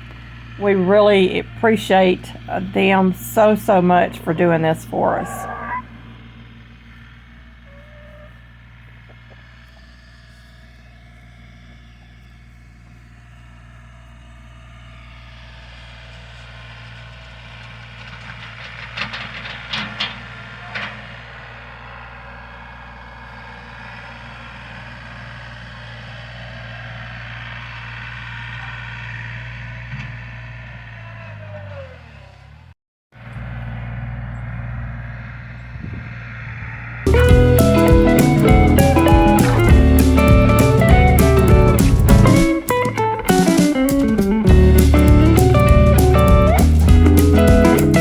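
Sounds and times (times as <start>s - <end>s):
vehicle engine running: 0.0s - 48.0s
clatter of sharp knocks: 18.0s - 21.0s.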